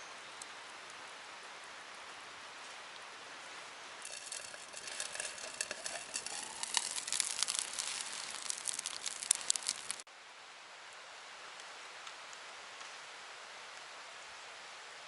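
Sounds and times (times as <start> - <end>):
wood fire crackling: 4.0 - 10.1.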